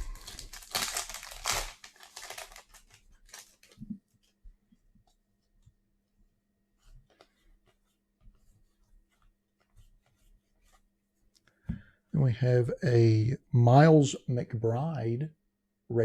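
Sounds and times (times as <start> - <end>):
wrapper tearing and crinkling: 0.0 - 3.8
cards clicking and rustling: 0.2 - 3.8.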